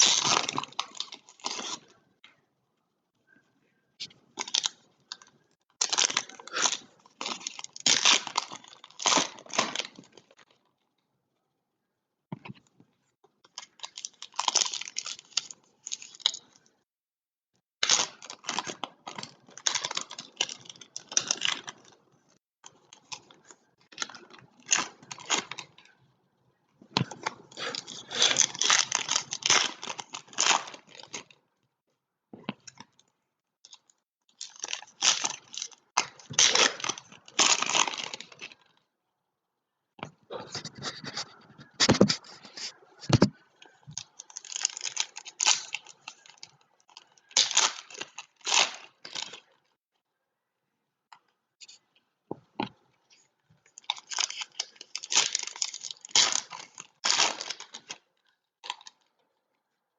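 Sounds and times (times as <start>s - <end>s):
card packs tearing and crinkling: 0.0s - 1.9s, 5.8s - 10.2s, 17.8s - 22.0s, 27.0s - 31.3s, 34.4s - 38.6s, 44.1s - 49.5s, 53.8s - 58.0s.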